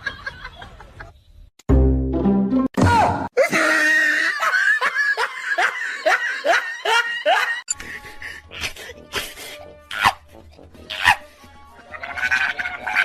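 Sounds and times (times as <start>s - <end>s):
background music: 1.7s - 3.3s, 5.5s - 13.0s
person laughing: 3.4s - 10.2s, 11.8s - 13.0s.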